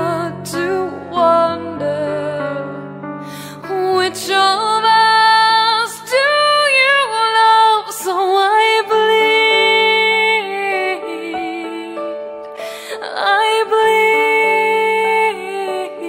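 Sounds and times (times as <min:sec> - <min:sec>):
woman singing wordless notes: 0:03.6 - 0:12.1, 0:12.8 - 0:16.0.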